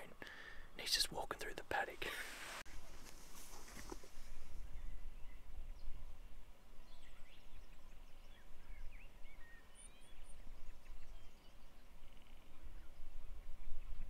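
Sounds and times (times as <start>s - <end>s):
wild birds chirping and whistling: 4.2s - 14.0s.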